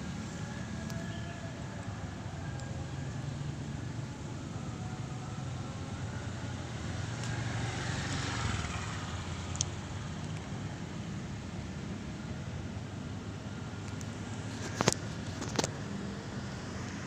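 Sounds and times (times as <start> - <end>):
low hum of traffic: 0.0 - 17.0
vehicle passing: 4.8 - 10.6.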